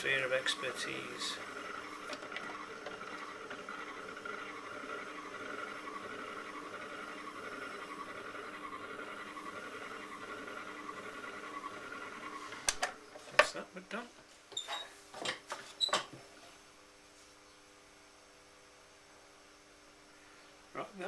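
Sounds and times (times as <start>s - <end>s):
potter's wheel whirring: 0.0s - 13.6s.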